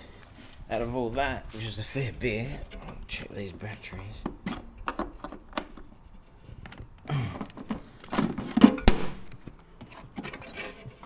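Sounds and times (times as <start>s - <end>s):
plastic battery handling clatter: 2.8s - 11.0s.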